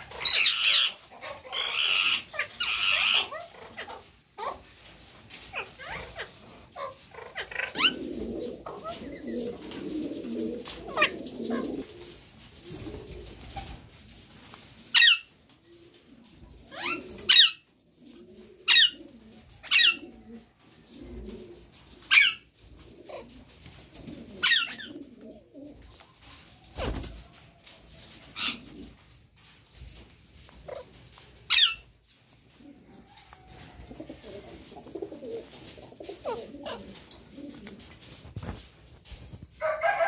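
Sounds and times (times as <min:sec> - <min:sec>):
soft cooing: 0:32.7 - 0:37.9.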